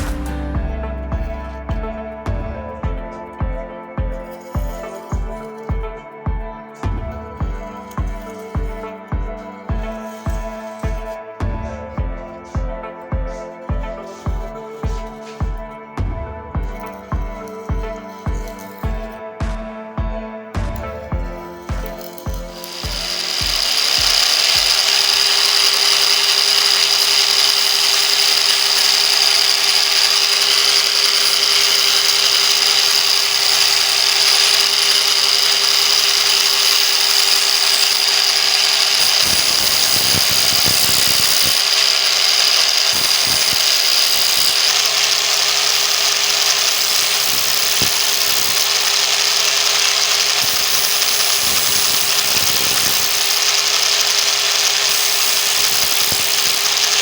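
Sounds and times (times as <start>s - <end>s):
angle grinder sanding: 0.0s - 16.0s, 16.6s - 57.0s.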